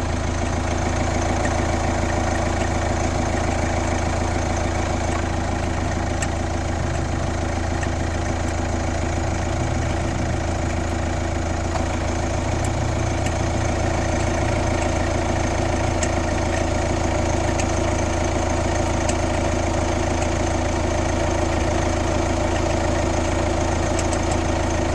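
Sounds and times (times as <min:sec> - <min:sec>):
diesel engine idling: 0:00.0 - 0:24.9
faint irregular clicks: 0:04.9 - 0:06.4, 0:07.6 - 0:08.8, 0:11.7 - 0:18.0, 0:18.7 - 0:19.5, 0:23.8 - 0:24.6.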